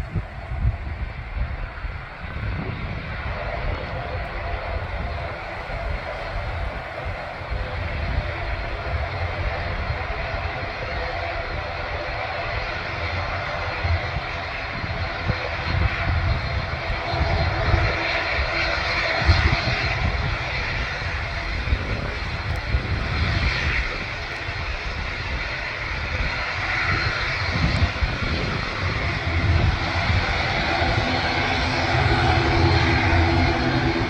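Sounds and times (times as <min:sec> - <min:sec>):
aircraft engines rushing: 0:00.0 - 0:34.0
low rumble: 0:20.0 - 0:34.0.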